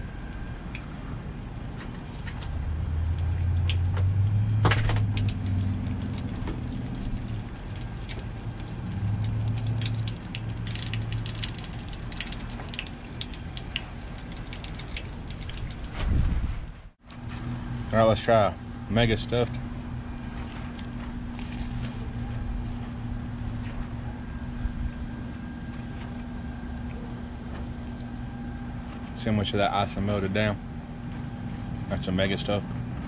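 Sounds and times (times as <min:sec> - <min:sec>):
frying oil crackling and popping: 0:00.0 - 0:17.0, 0:20.5 - 0:22.4
low hum: 0:00.0 - 0:29.0.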